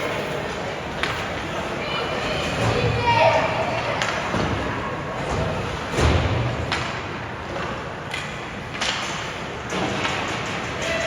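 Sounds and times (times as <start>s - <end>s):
knocks and thuds in a hall: 2.3s - 10.8s.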